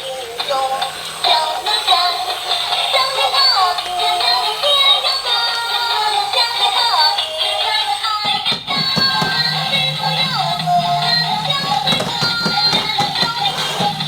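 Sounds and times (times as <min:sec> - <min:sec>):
synthetic singing music: 0:00.0 - 0:14.0.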